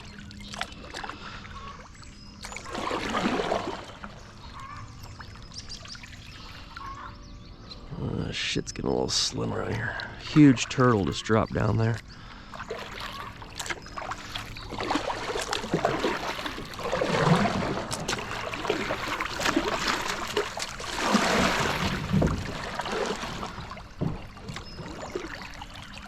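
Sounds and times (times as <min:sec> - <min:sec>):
kayak paddle splashing: 0:00.0 - 0:07.1, 0:09.7 - 0:26.0
water gurgling: 0:02.5 - 0:04.8, 0:07.9 - 0:26.0.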